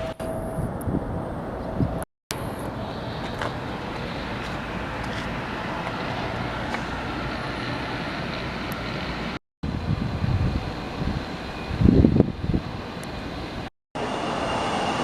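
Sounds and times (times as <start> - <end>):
jet engines rushing: 0.7 - 15.0.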